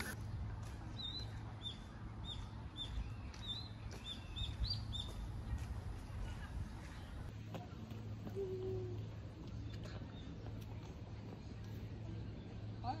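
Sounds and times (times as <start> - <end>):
small songbird chirping: 0.9 - 5.3.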